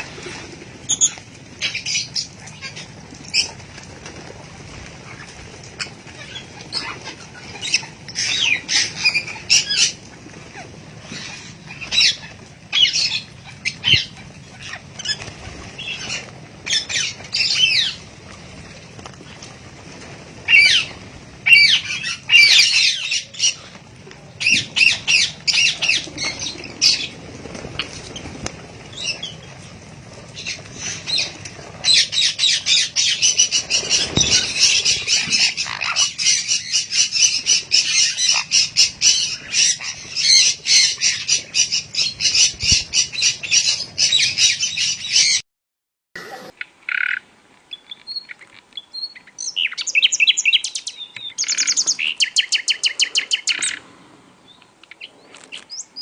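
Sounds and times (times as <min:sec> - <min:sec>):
bird giving harsh chattering calls: 0:46.2 - 0:46.6.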